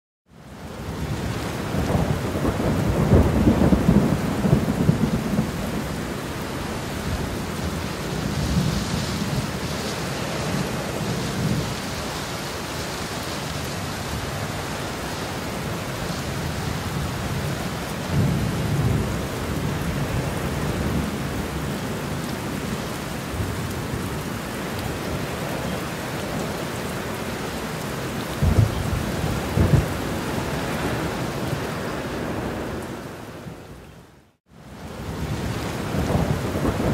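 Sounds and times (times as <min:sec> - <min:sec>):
rain hissing: 0:00.4 - 0:36.9
thunder rolling: 0:28.4 - 0:32.8, 0:35.2 - 0:36.9.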